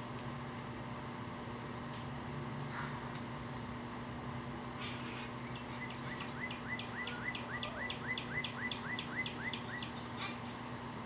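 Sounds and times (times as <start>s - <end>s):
bird chirping song: 4.9s - 10.8s.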